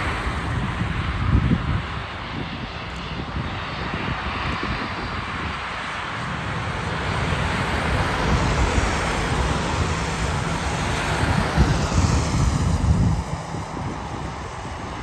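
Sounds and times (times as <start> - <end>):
jet airliner engines rushing: 0.0 - 15.0.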